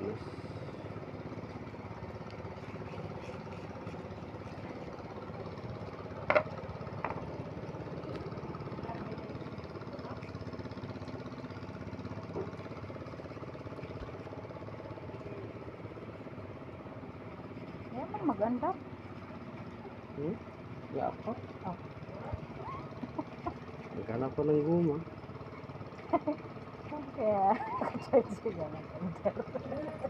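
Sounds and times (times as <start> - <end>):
small engine idling: 0.0 - 30.0.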